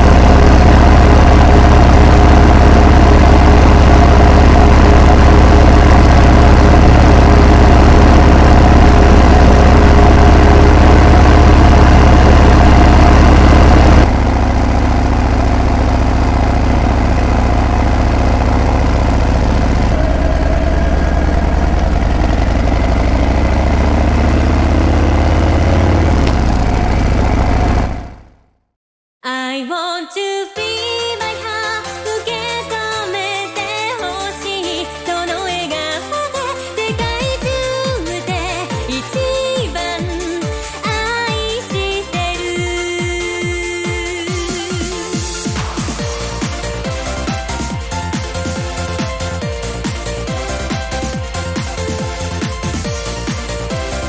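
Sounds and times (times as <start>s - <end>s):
motorcycle exhaust running: 0.0s - 28.6s, 45.4s - 54.0s.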